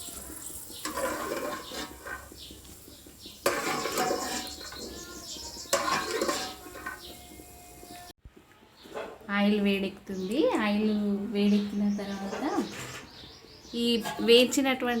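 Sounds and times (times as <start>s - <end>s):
peanuts scraped from a pan: 0.0s - 8.0s, 12.2s - 13.2s, 13.8s - 14.6s.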